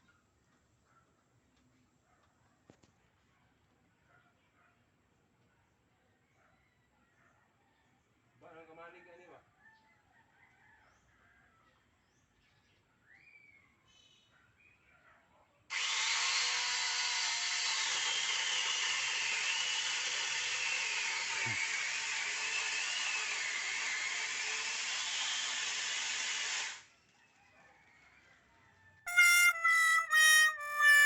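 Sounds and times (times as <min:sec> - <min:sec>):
electric chainsaw cutting wood: 0:15.7 - 0:25.9.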